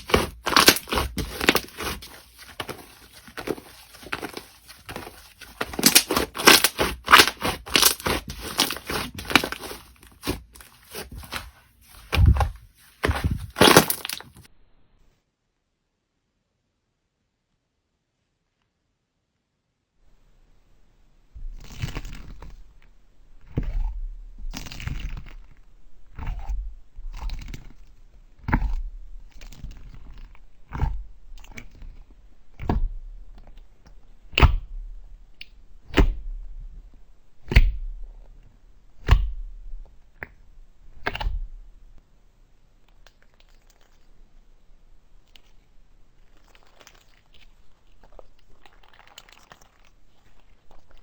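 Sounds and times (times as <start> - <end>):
slime crackling when squeezed: 0.0 - 11.4, 13.0 - 14.4, 45.3 - 51.0.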